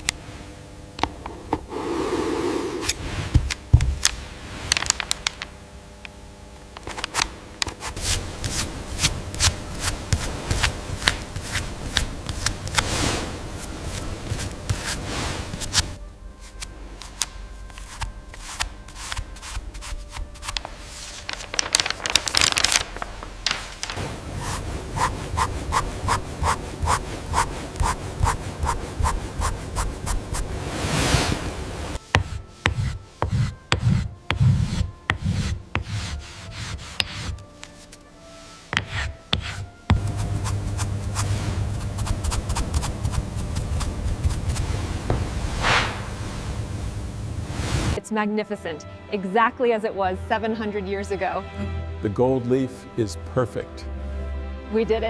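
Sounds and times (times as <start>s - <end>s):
hand scrubbing a hard surface: 1.6s - 3.5s, 7.7s - 17.2s, 17.8s - 21.3s, 23.4s - 46.6s.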